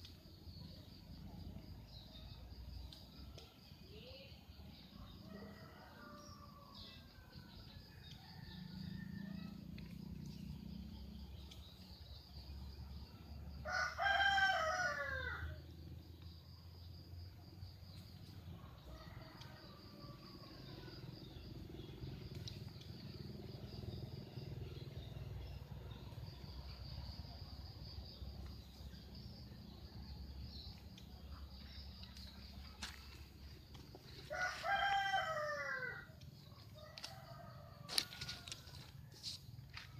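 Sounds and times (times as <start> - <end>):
rooster crowing: 13.6 - 15.6, 34.2 - 36.1, 36.8 - 39.0.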